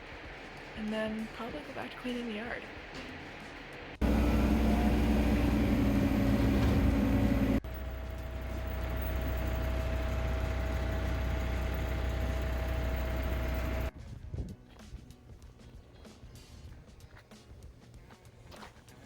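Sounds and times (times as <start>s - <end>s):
farm vehicle engine running: 4.0s - 13.9s.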